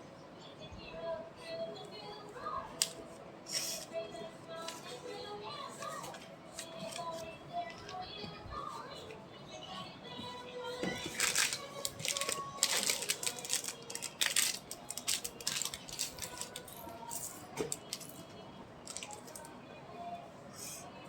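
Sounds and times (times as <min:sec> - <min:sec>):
plastic pieces rattling and clicking: 0:11.1 - 0:16.8.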